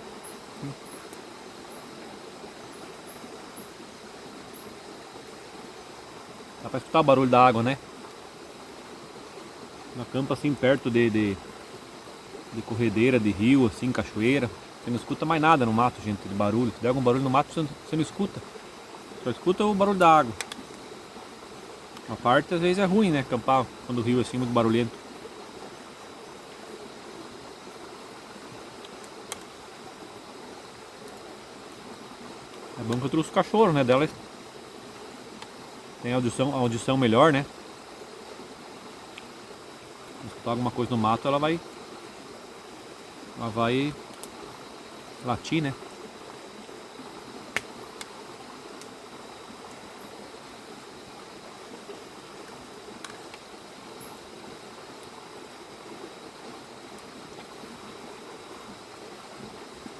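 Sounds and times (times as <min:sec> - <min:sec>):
faint click: 0:20.0 - 0:20.8, 0:28.8 - 0:29.5, 0:44.1 - 0:44.4, 0:52.4 - 0:53.4.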